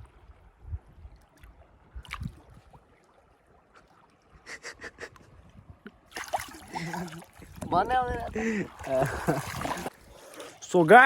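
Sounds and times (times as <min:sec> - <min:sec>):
river water trickling: 0:00.0 - 0:11.0
short water splashes: 0:01.2 - 0:04.5, 0:05.9 - 0:11.0.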